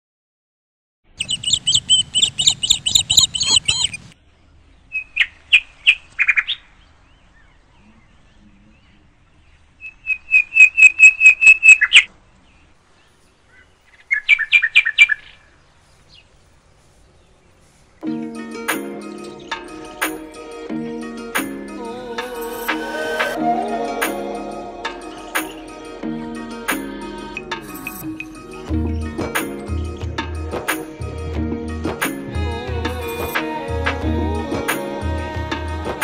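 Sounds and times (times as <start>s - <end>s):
bird calling high repeated notes: 1.1s - 4.2s, 9.8s - 12.1s, 18.8s - 26.0s, 26.8s - 30.2s
music: 18.0s - 36.0s.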